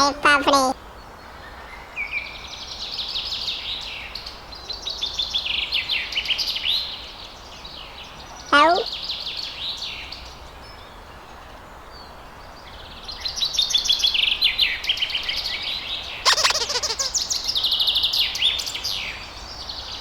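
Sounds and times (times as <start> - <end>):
high trilled bird chirps: 16.3 - 17.4
harsh bird call: 16.3 - 17.5.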